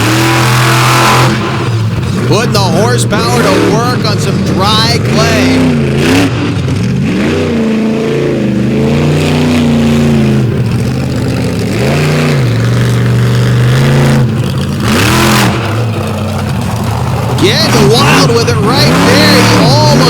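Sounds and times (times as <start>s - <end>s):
monster truck engine revving: 0.0s - 20.0s
loud rush of noise: 14.2s - 20.0s.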